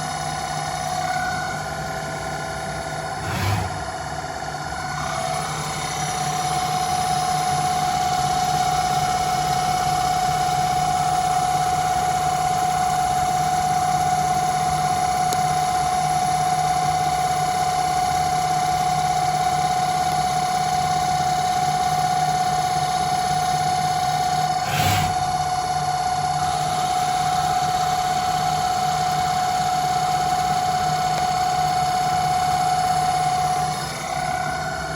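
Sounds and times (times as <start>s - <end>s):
lathe mechanical whine: 0.0s - 34.9s
low hum: 3.2s - 4.2s.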